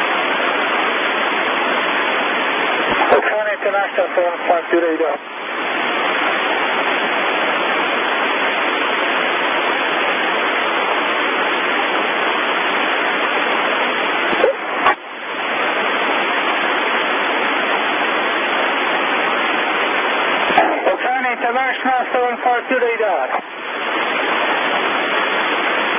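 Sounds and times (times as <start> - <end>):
radio static hiss: 0.0 - 25.9
radio click: 2.8 - 4.0.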